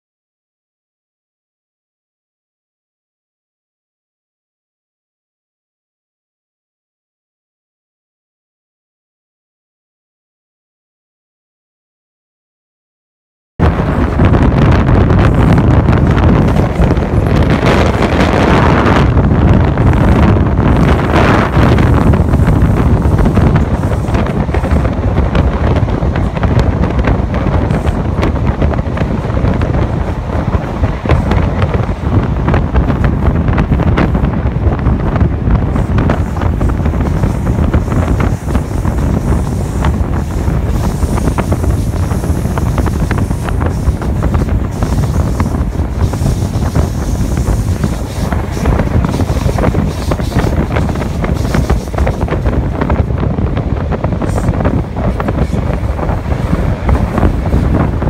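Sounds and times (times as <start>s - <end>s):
train coach rumbling on rails: 13.6s - 58.0s
wind buffeting microphone: 13.6s - 58.0s.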